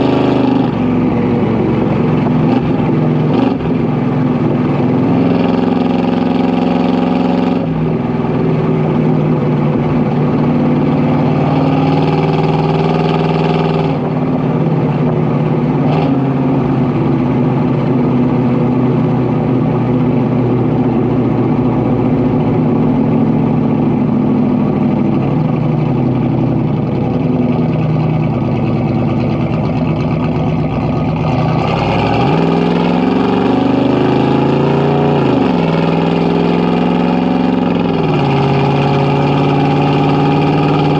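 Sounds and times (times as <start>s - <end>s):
car engine exhaust: 0.0s - 40.9s.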